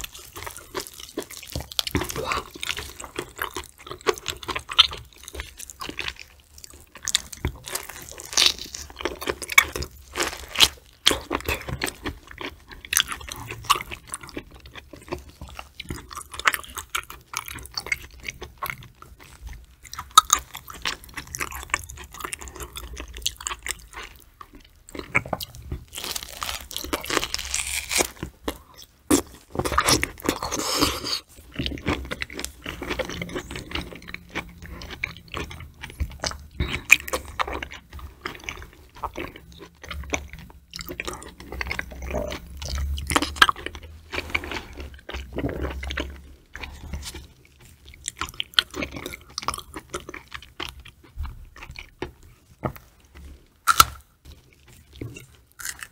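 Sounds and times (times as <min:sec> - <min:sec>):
wet chewing: 0:00.0 - 0:55.9
crisp crunching bites: 0:24.9 - 0:31.2, 0:53.6 - 0:54.1, 0:55.1 - 0:55.9.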